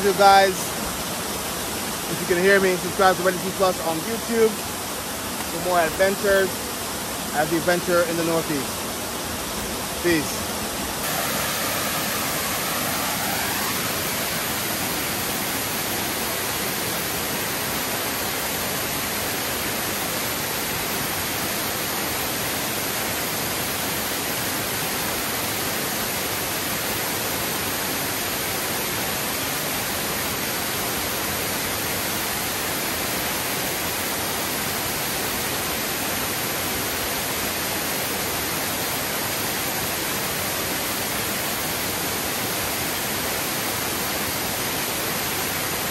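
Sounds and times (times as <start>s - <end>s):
waterfall pouring: 11.0s - 25.1s.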